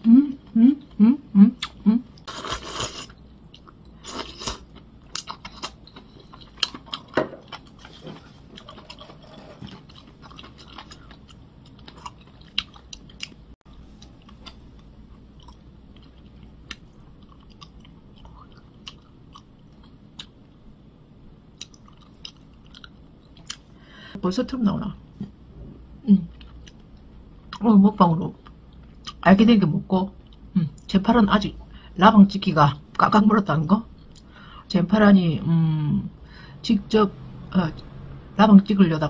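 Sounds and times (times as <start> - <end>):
person chewing food: 1.6 - 20.4, 21.6 - 23.7.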